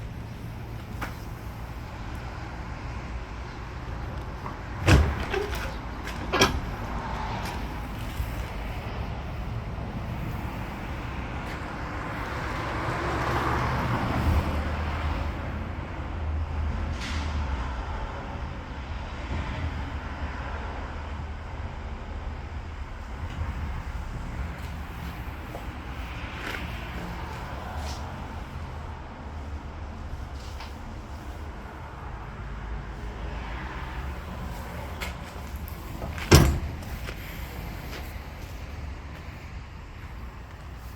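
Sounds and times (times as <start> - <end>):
vehicle low rumble: 0.0 - 40.9
loud knocks: 36.0 - 37.0.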